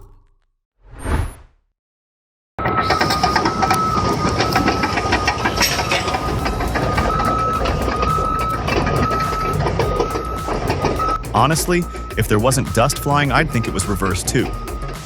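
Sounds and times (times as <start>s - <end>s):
reversing alarm beeping: 2.6s - 15.0s
track clatter and metal knocks: 2.8s - 11.2s
bulldozer engine running: 2.8s - 15.0s.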